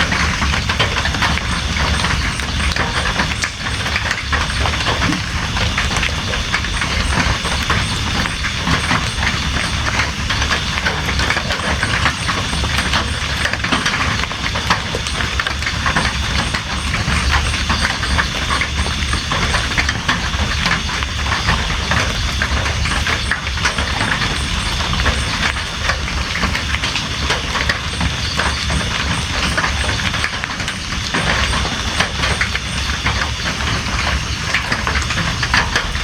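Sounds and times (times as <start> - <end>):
constant low rumble: 0.0 - 36.0
heavy rain: 0.0 - 36.0.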